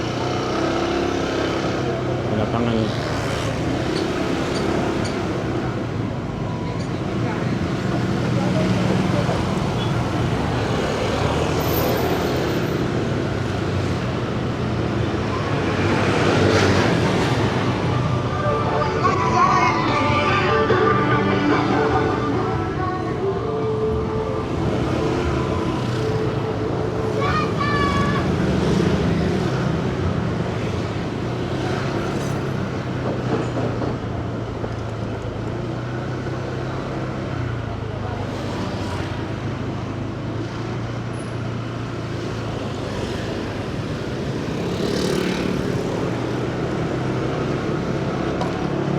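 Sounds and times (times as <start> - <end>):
city traffic: 0.0 - 48.9
road noise: 0.0 - 48.9
motorcycle engine: 42.4 - 47.7.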